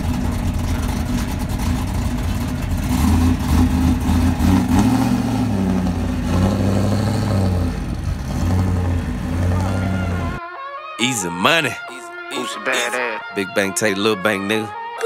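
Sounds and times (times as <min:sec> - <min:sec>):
car engine running unevenly: 0:00.0 - 0:10.4.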